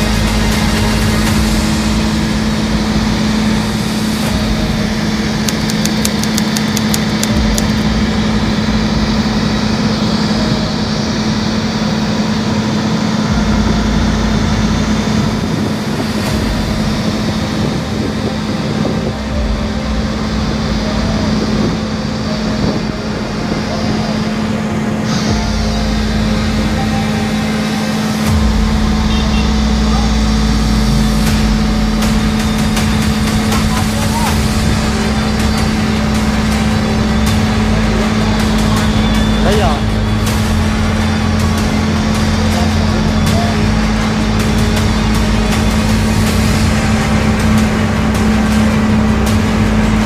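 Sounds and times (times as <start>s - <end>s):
rapid ticks: 0.0s - 8.2s
excavator diesel engine running: 0.0s - 50.0s.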